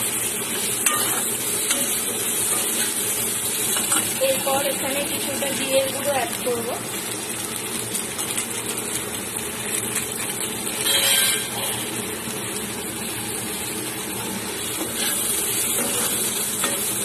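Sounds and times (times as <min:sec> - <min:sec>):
food sizzling in oil: 0:00.0 - 0:17.0
metal spatula stirring: 0:00.6 - 0:03.0.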